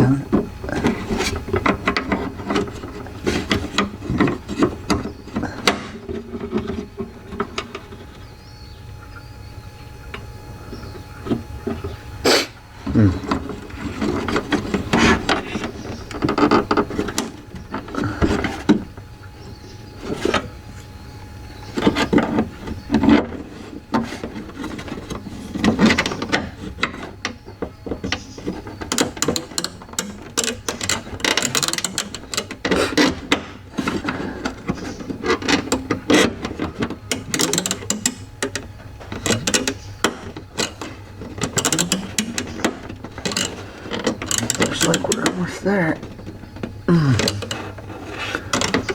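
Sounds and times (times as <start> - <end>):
plastic parts clicking and rattling: 0.0 - 8.3, 12.8 - 20.9, 21.6 - 48.9.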